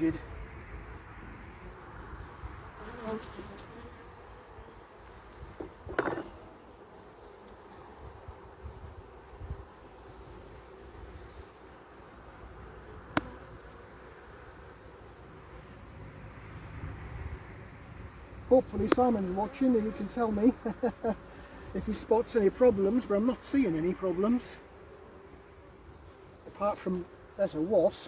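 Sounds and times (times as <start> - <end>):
bees humming: 0.0 - 28.0
knock: 5.6 - 6.3.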